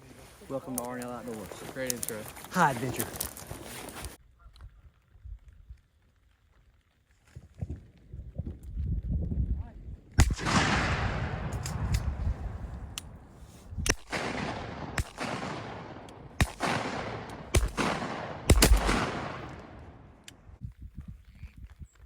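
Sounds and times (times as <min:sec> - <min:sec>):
shotgun shots with rolling echo: 0:10.2 - 0:20.3.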